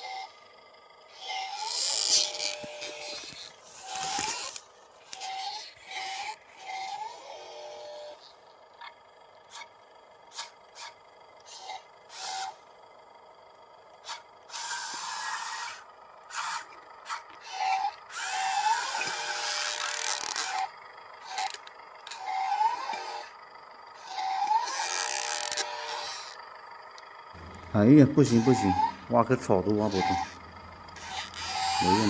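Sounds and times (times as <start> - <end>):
small electric motors whining: 0.0 - 32.0
grinding scraping against ground: 1.2 - 8.4, 27.4 - 32.0.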